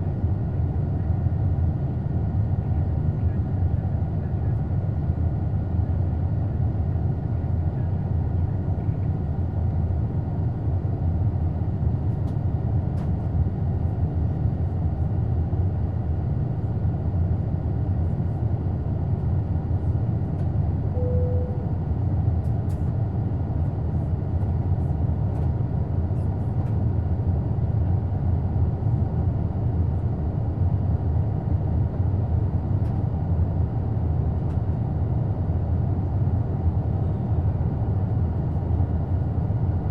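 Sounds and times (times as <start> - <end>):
jet engine cabin roar: 0.0 - 39.9
short single tone: 20.9 - 21.8.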